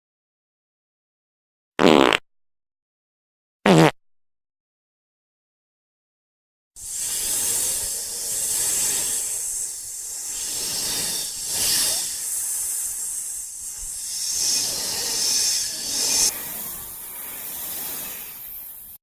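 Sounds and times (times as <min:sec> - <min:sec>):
loud noisy hiss: 0:06.8 - 0:19.0.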